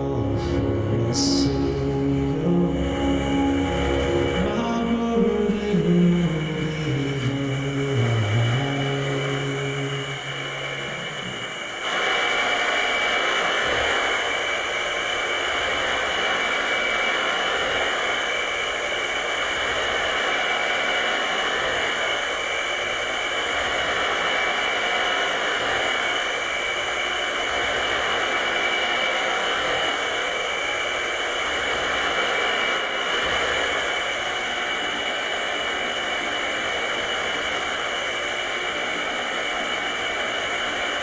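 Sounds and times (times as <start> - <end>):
held high electronic tones: 0.0 - 11.8
low sustained synth tone: 0.0 - 12.2
dense electronic hiss: 0.0 - 41.0.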